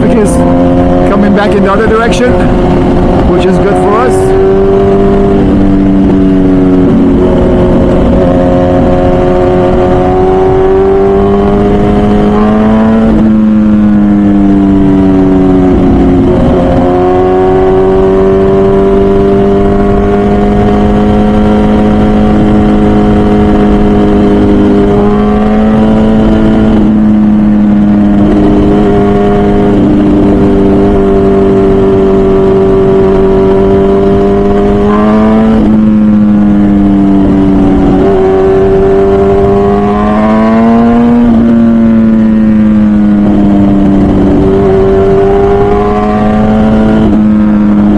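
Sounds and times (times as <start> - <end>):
motorcycle engine at high revs: 0.0 - 47.9
wind rushing: 2.2 - 12.4.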